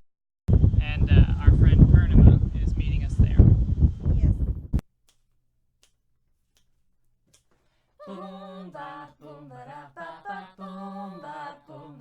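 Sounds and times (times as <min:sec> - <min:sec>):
person singing unaccompanied: 0:08.0 - 0:12.0.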